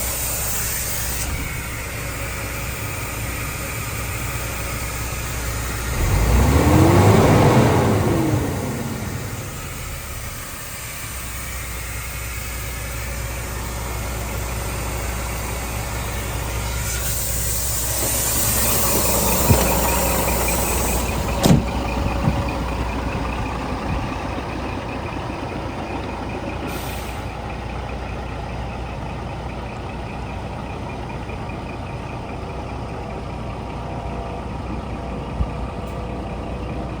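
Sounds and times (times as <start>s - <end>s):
air hiss: 0.0s - 3.8s, 8.8s - 21.7s, 26.7s - 27.3s
diesel engine idling: 0.0s - 37.0s.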